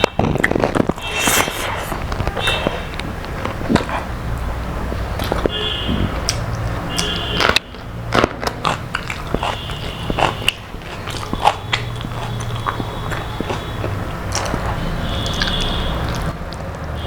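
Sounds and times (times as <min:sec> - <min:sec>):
crunchy food chewing: 0:00.0 - 0:17.0.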